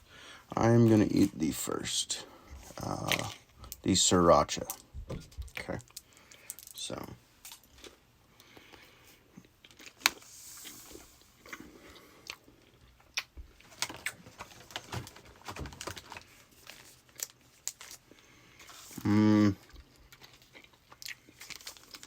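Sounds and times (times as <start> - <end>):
person chewing jelly bean: 2.6 - 3.8, 7.5 - 14.3, 17.1 - 22.0.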